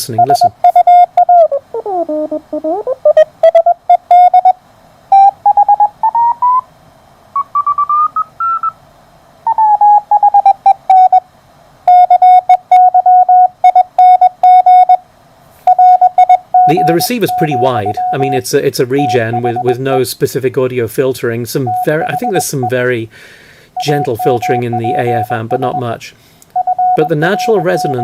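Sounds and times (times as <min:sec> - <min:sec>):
morse code beeps: 0:00.0 - 0:06.6, 0:07.4 - 0:08.8, 0:09.5 - 0:11.2, 0:11.9 - 0:15.0, 0:15.7 - 0:18.4, 0:19.0 - 0:19.8, 0:21.7 - 0:22.8, 0:23.8 - 0:26.0, 0:26.6 - 0:28.0.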